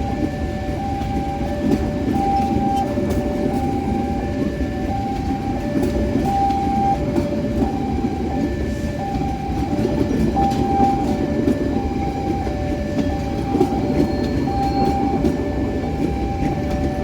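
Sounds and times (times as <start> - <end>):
train rumbling on track: 0.0 - 17.0
two-tone warning alarm: 0.0 - 17.0.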